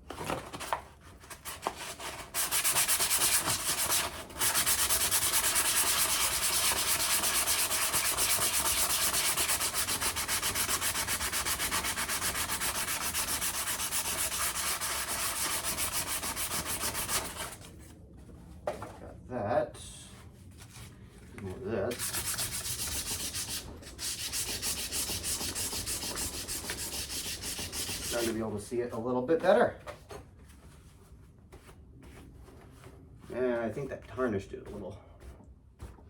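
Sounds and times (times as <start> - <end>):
sandpaper rubbing on metal: 1.4 - 17.7, 21.9 - 28.5.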